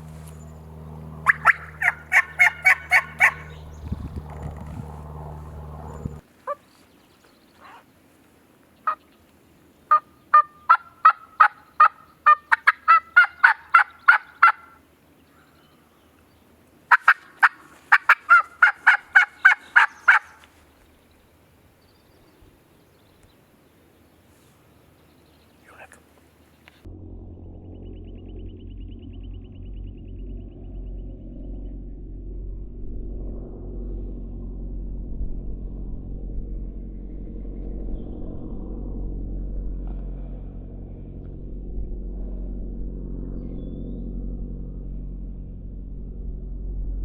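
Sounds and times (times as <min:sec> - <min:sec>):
steady low hum: 0:00.0 - 0:47.0
turkey yelps: 0:01.2 - 0:03.7, 0:07.6 - 0:07.9, 0:09.9 - 0:14.8, 0:16.9 - 0:20.5.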